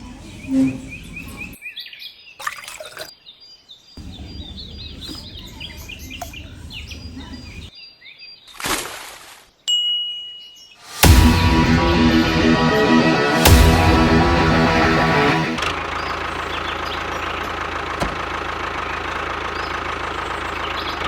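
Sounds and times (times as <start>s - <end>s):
small birds chirping: 0.0s - 8.6s, 15.8s - 21.0s
electric guitar rock music: 10.9s - 15.8s
rushing noise: 10.9s - 16.0s
steady high tone: 10.9s - 16.0s.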